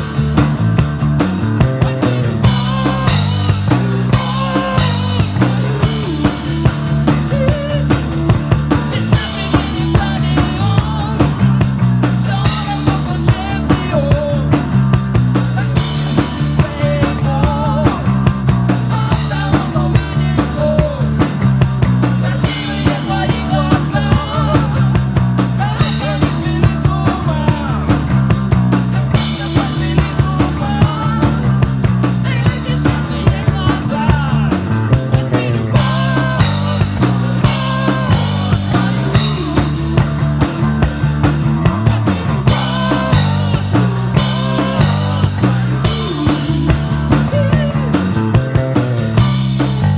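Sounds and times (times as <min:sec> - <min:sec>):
bass line: 0:00.0 - 0:49.9
drum kit beat: 0:00.0 - 0:49.9
electric guitar: 0:00.0 - 0:49.9.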